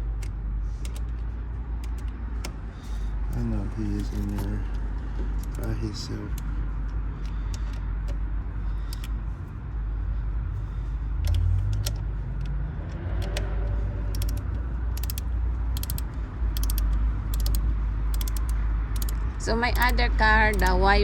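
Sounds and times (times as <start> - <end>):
low rumble: 0.0 - 21.0
ratchet wrench clicking: 8.9 - 9.1, 14.1 - 20.8.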